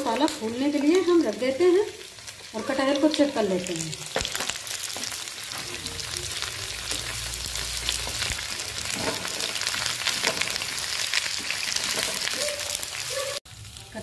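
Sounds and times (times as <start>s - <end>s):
food sizzling in hot oil: 0.0s - 14.0s
spatula stirring: 4.3s - 12.8s.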